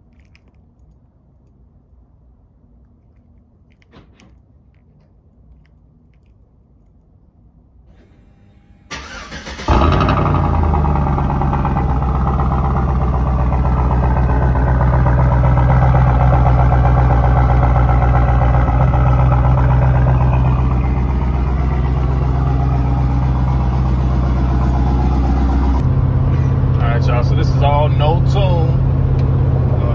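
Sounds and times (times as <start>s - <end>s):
car engine starter cranking: 7.9s - 12.8s
car engine idling: 7.9s - 29.9s.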